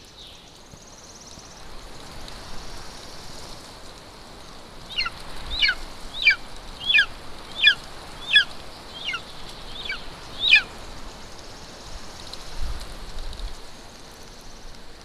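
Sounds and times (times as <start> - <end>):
eagle chick yelping: 4.9 - 10.7.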